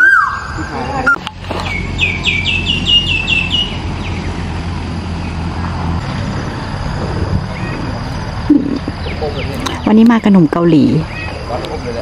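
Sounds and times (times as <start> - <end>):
bird whistled notes: 0.0 - 4.2
low engine hum: 0.0 - 12.0.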